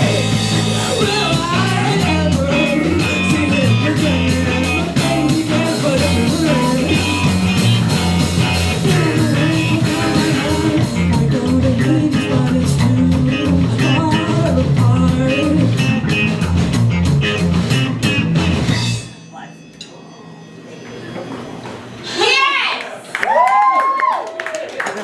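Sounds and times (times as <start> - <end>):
person singing: 0.0 - 16.2
electric guitar: 0.0 - 19.0
bass guitar: 0.0 - 19.3
drums: 0.0 - 22.5.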